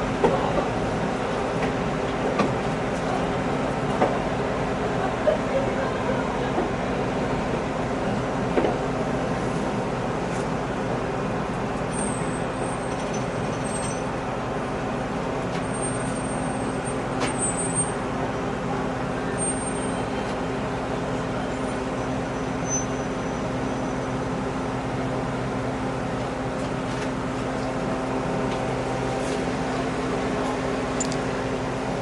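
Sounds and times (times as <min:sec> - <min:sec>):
train rumbling in motion: 0:00.0 - 0:32.0
constant low hum: 0:20.0 - 0:32.0
faint high squeals: 0:22.4 - 0:24.1
click: 0:31.0 - 0:31.2.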